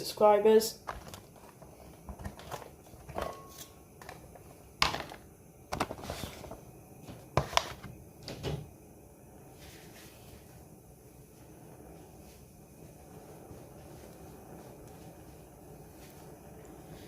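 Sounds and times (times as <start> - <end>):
kitchen knocks and clatters: 0.8 - 8.7
faint steady tone: 8.0 - 17.0.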